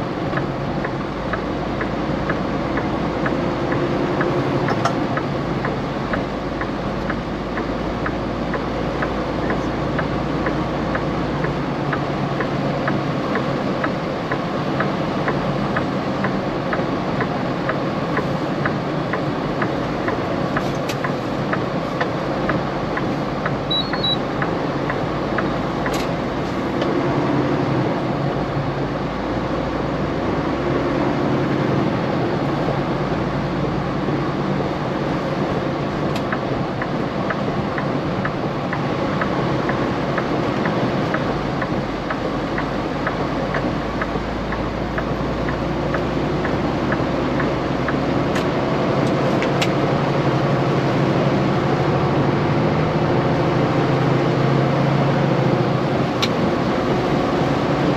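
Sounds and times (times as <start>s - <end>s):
truck cab rumble and road noise: 0.0s - 57.9s
light regular ticking: 0.1s - 27.0s, 34.1s - 50.3s.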